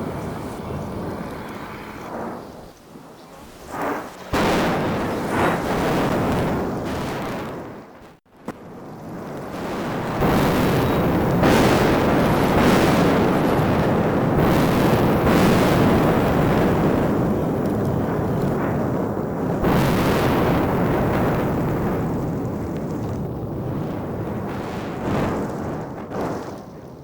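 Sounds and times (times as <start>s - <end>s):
volcanic blasts: 0.0s - 27.0s
roar of lava fountaining: 8.8s - 27.0s.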